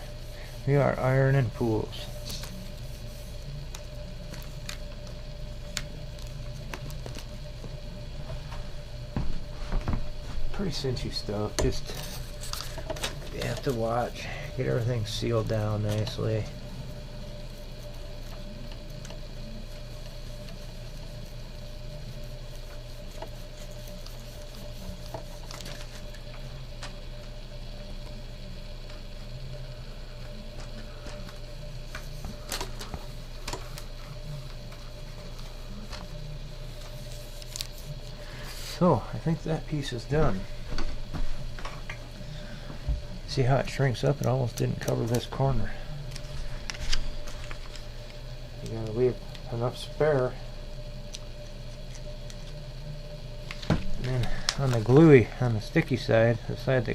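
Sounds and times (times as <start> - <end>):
steady low hum: 0.0 - 56.9
iron sliding over film: 10.8 - 27.3.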